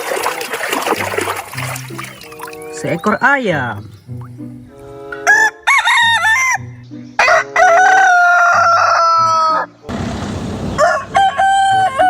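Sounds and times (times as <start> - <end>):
rooster crowing: 7.2 - 9.7, 10.8 - 12.0.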